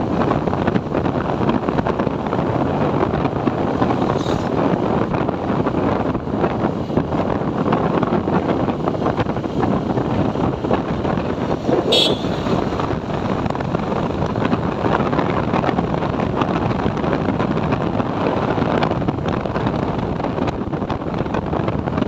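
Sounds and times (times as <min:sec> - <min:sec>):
motorcycle running: 0:00.0 - 0:22.0
wind buffeting microphone: 0:00.0 - 0:22.0
horn beep: 0:11.9 - 0:12.5.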